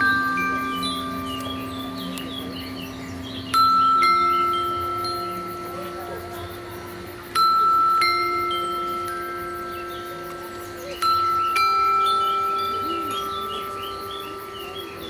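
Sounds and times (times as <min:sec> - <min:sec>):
bell-like chime tones: 0:00.0 - 0:15.0.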